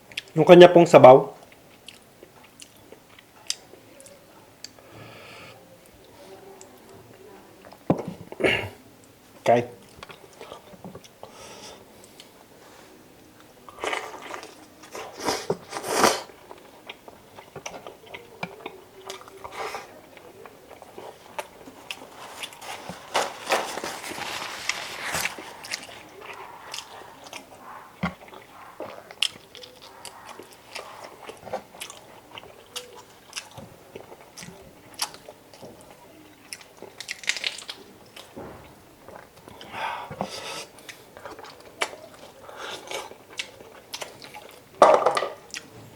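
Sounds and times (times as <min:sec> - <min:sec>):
chewing and biting food: 0:13.7 - 0:45.7.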